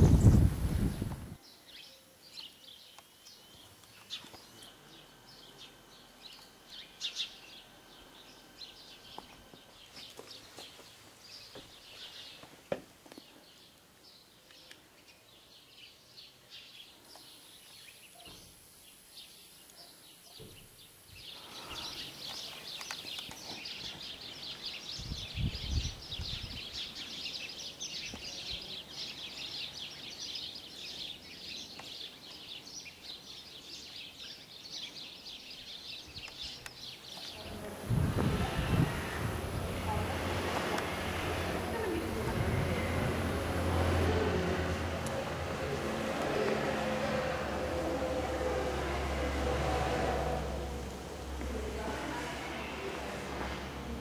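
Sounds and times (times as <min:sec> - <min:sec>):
small birds chirping: 0:00.0 - 0:48.4
low rumble: 0:37.4 - 0:54.0.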